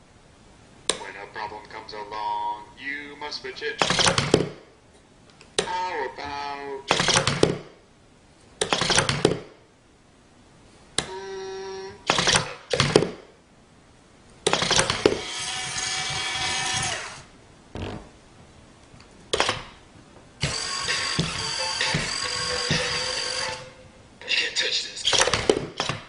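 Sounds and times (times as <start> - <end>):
small machine whirring and clattering: 14.5 - 17.3, 20.4 - 23.8.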